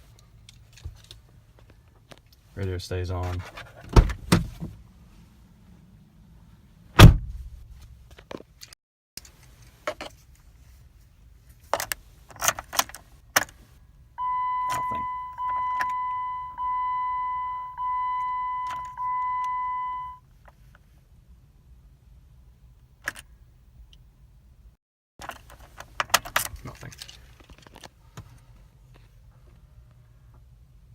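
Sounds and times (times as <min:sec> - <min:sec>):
loud thump: 0:07.0 - 0:07.6
car warning chime: 0:14.2 - 0:20.2.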